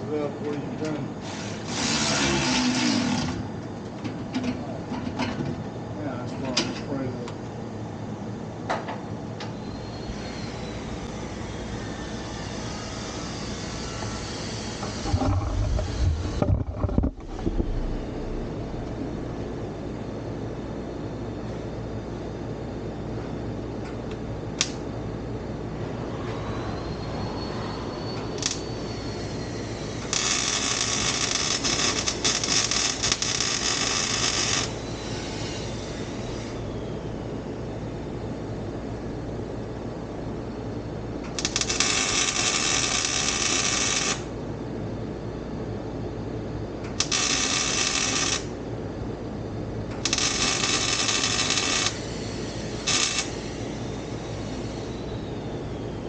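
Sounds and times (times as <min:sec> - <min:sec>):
steady low hum: 0:00.0 - 0:56.0
welding crackling hiss: 0:28.4 - 0:36.6, 0:41.4 - 0:44.4, 0:47.0 - 0:48.6, 0:50.0 - 0:54.9.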